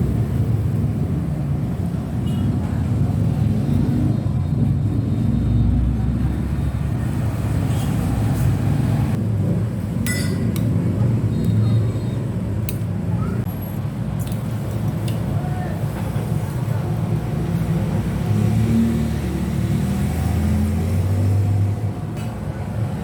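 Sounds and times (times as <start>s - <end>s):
spoon clinking against bowl: 10.1s - 10.6s.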